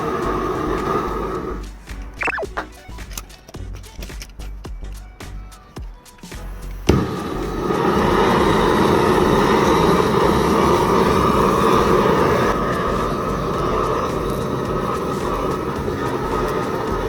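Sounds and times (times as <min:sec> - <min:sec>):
gas torch flame rushing: 0:00.0 - 0:01.7, 0:06.8 - 0:17.0.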